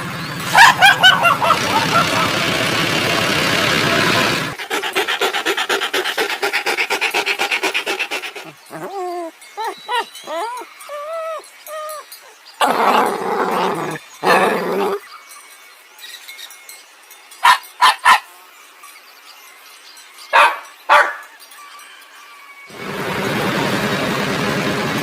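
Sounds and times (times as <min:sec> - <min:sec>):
dog barking: 0:00.5 - 0:02.4, 0:17.4 - 0:18.3, 0:20.4 - 0:21.2
rough noisy sounds: 0:01.2 - 0:09.0.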